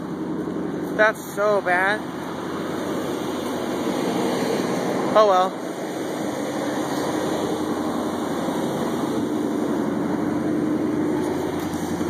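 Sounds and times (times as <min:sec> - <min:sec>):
loud fan noise: 0:00.0 - 0:12.0
pickup engine idling: 0:00.0 - 0:12.0.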